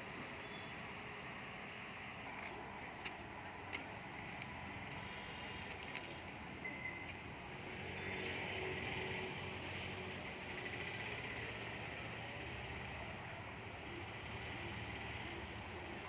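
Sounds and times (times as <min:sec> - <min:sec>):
train rumble and hiss: 0:00.0 - 0:16.0.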